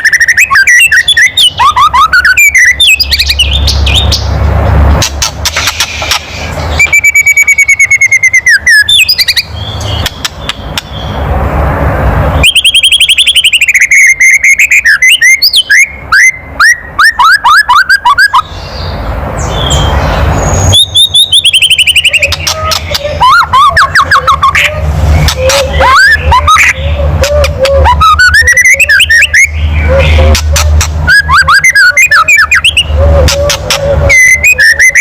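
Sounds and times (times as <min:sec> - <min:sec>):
loud rushing noise: 0:03.6 - 0:06.9, 0:10.2 - 0:12.7, 0:24.7 - 0:28.1.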